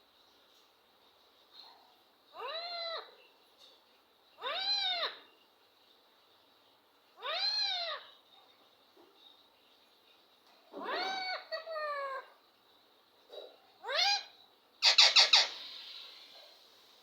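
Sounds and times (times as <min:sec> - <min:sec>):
parrot calling: 0:04.4 - 0:05.3, 0:07.2 - 0:08.1, 0:10.7 - 0:12.3, 0:13.8 - 0:16.6.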